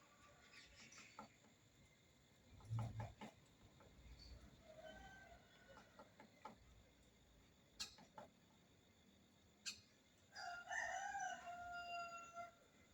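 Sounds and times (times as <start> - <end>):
rooster crowing: 4.6 - 5.8, 10.3 - 12.7.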